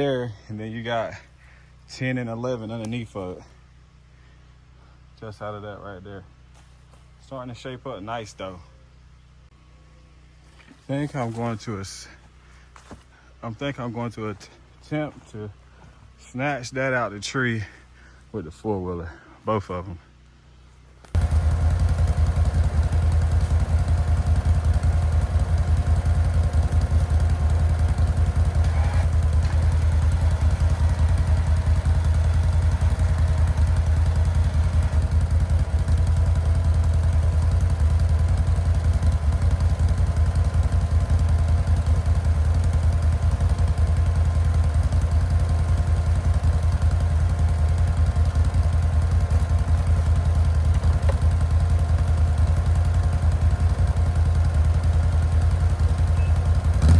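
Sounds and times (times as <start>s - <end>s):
atv engine running: 20.0s - 56.9s.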